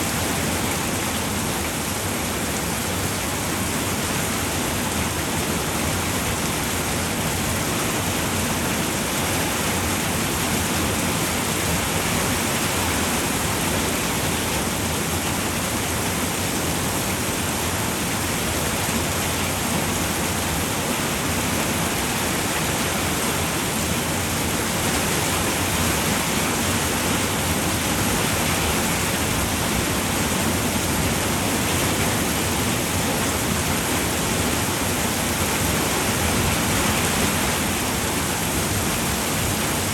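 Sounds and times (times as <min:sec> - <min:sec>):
rain falling on a roof: 0:00.0 - 0:39.9.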